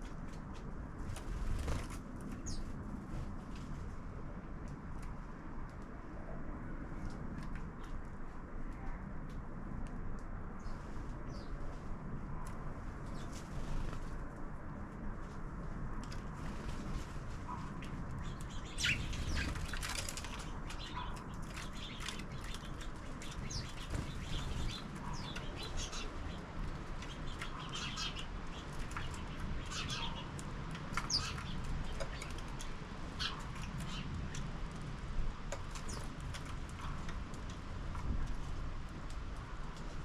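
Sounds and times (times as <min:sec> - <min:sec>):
sparrows chirping: 0:02.4 - 0:02.7, 0:10.6 - 0:11.6, 0:13.1 - 0:13.4, 0:17.5 - 0:34.6, 0:35.5 - 0:37.1
wing flutters: 0:16.1 - 0:34.9.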